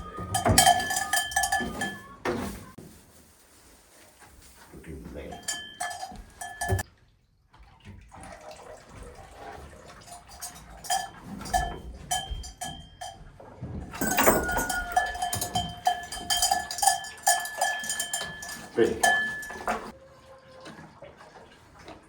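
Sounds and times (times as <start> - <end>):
metal vessel clinking and ringing: 0.0 - 2.6, 5.3 - 6.8, 10.0 - 19.9.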